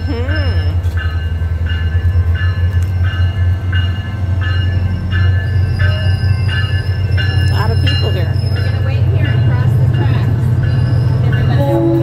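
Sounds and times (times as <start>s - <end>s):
diesel train engine rumbling: 0.0s - 12.0s
train bell ringing: 0.0s - 12.0s.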